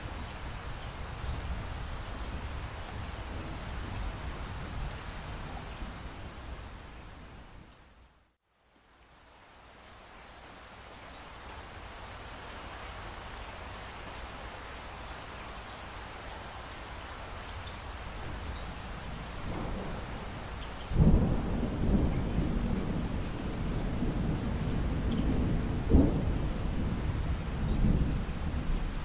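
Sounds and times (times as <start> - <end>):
steady rain hiss: 0.0 - 29.0
low rumble of thunder: 18.2 - 29.0.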